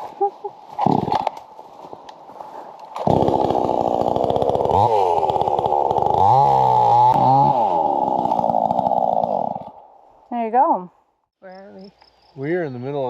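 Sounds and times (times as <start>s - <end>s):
chainsaw cutting log: 2.9s - 9.8s.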